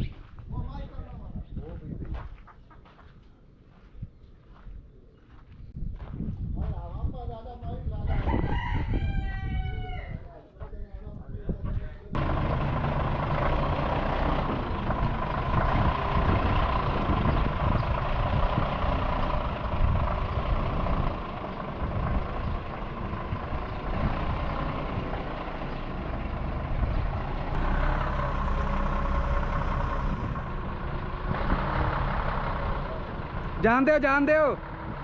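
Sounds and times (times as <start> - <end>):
truck engine running: 12.2 - 35.0.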